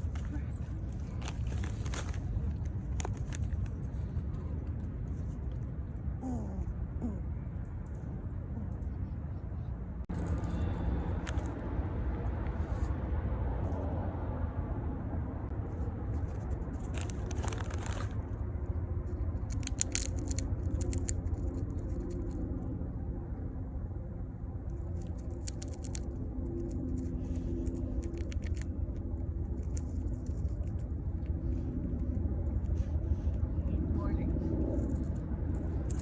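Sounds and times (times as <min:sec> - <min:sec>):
squirrel crunching peanut shells: 0:00.0 - 0:06.4, 0:10.1 - 0:11.6, 0:16.1 - 0:18.5, 0:19.1 - 0:22.5, 0:24.7 - 0:33.6, 0:34.6 - 0:36.0
distant traffic rumble: 0:00.0 - 0:36.0.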